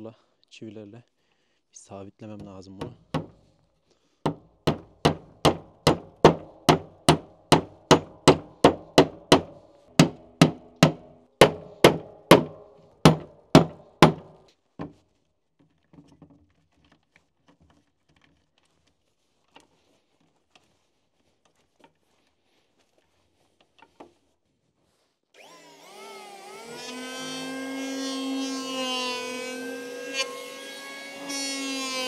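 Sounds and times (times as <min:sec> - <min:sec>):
hammer driving nails into wood: 0:02.8 - 0:03.4, 0:04.2 - 0:14.9
faint handling sounds: 0:14.5 - 0:25.3.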